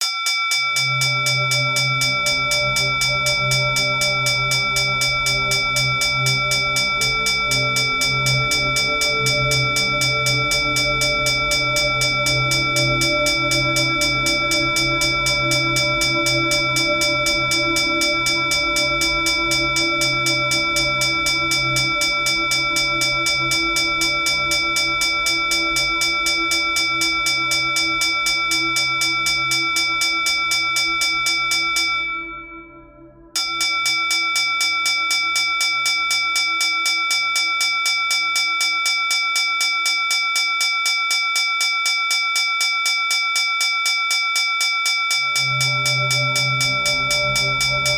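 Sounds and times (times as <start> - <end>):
hand bell rung rapidly: 0.0 - 32.0
low drone of music: 0.8 - 36.8, 45.3 - 47.9.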